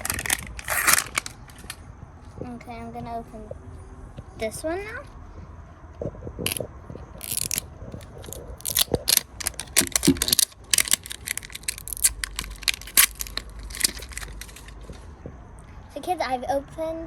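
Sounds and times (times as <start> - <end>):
plastic packaging crinkling: 0.0 - 1.8, 6.5 - 14.9.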